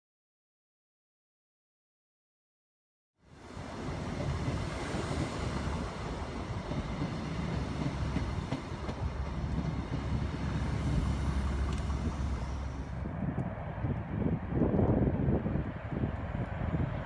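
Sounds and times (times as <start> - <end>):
idling train engine rumble and hum: 3.4 - 17.0.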